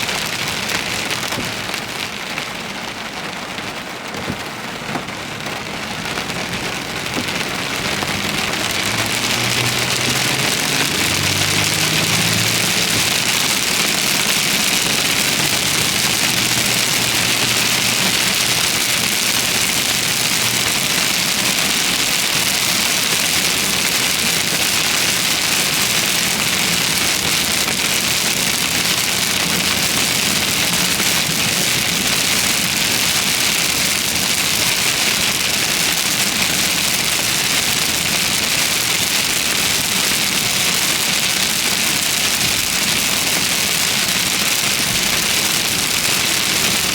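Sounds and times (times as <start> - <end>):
heavy rain pouring: 0.0 - 46.9
low vehicle engine hum: 3.0 - 46.9.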